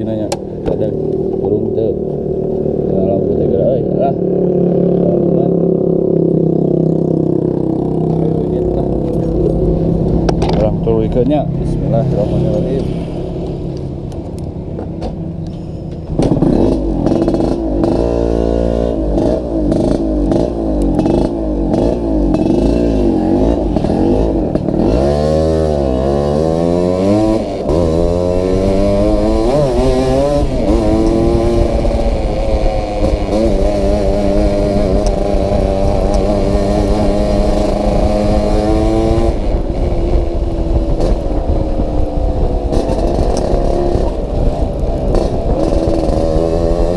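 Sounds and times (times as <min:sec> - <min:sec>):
exhaust jingling rattle: 0:00.0 - 0:18.0
motorcycle two-stroke engine: 0:00.0 - 0:46.9.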